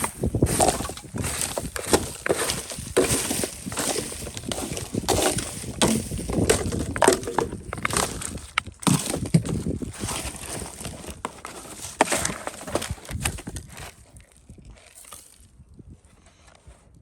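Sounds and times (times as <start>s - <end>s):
scraping and crunching: 0.0s - 17.0s.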